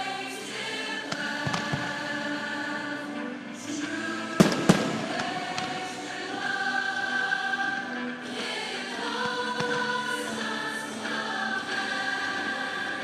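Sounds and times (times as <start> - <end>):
choral music: 0.0 - 13.0
firework bangs: 4.4 - 5.8.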